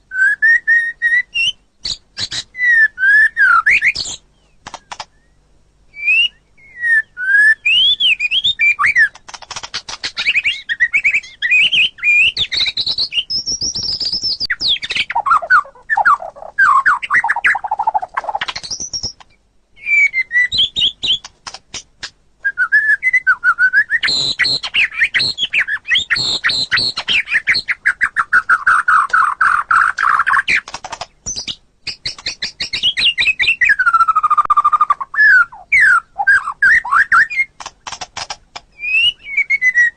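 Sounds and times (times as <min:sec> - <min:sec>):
bird singing whistled song: 0:00.0 - 0:21.3, 0:22.4 - 0:37.6, 0:38.7 - 0:39.9.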